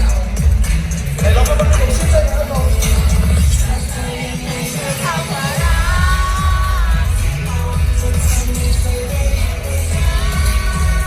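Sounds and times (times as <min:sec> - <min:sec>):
amplified pop music with heavy bass: 0:00.0 - 0:11.0.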